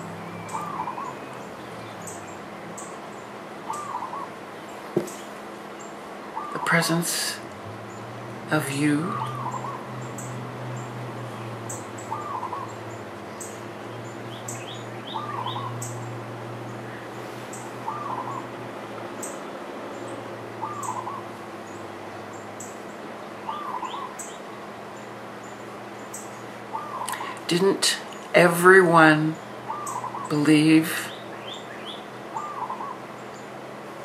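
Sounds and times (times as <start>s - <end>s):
bird calling wavering note: 0.0s - 2.9s, 3.6s - 4.4s, 8.6s - 18.6s, 20.5s - 21.8s, 23.4s - 24.4s, 26.7s - 27.4s, 29.3s - 33.1s
low hum: 7.3s - 22.4s.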